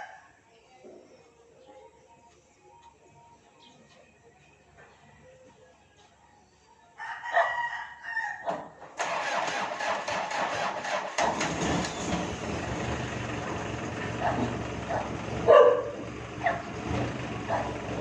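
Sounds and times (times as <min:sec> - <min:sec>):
rooster crowing: 0:07.0 - 0:08.6
engine cranking and running: 0:09.0 - 0:18.0.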